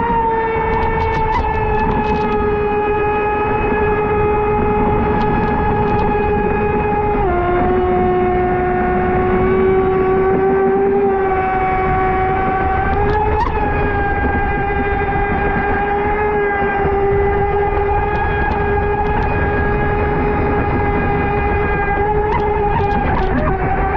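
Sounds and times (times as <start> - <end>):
rc boat motor whining: 0.0 - 23.9.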